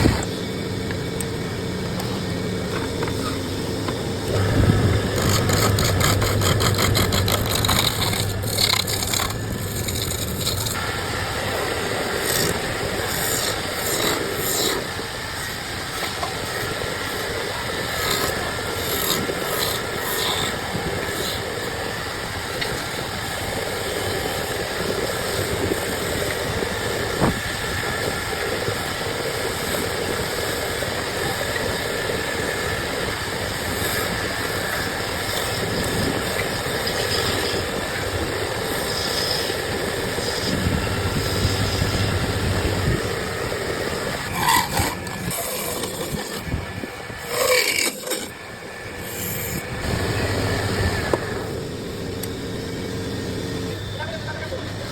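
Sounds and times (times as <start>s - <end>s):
machine motor humming: 0.0s - 22.6s
wood scraping and shaving: 1.9s - 21.9s, 33.5s - 48.4s, 49.0s - 50.4s
fast rhythmic cutting of wood: 4.2s - 21.7s, 44.0s - 48.4s.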